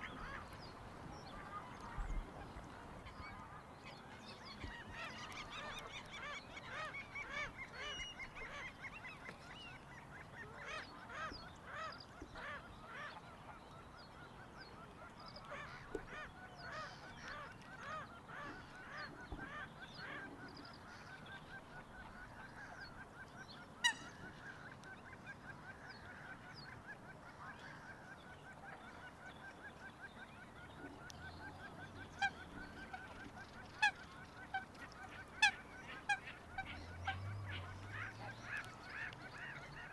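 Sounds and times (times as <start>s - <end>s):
geese honking: 23.8s - 24.3s, 31.5s - 39.9s.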